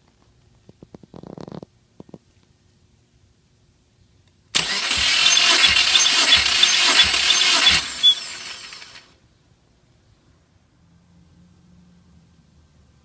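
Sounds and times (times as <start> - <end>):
starter motor cranking engine: 4.6 - 9.1.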